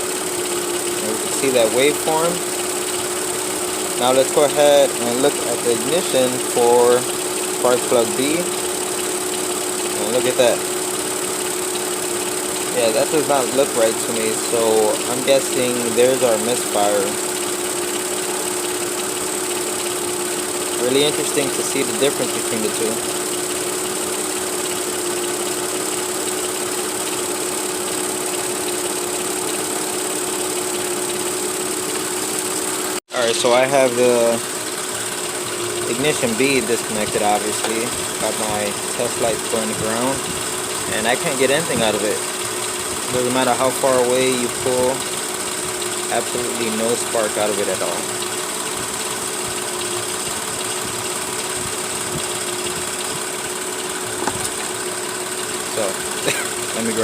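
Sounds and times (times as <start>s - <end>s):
car engine idling with misfire: 0.0s - 57.0s.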